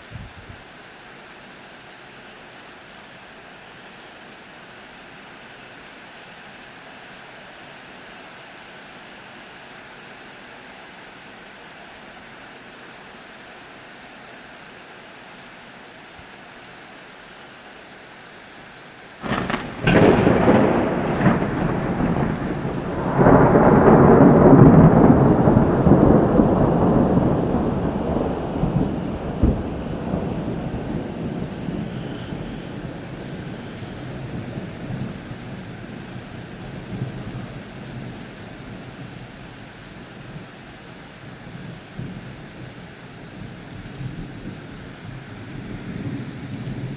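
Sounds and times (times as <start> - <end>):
steady rain: 0.0 - 46.9
thunder crack and rumble: 19.2 - 39.3.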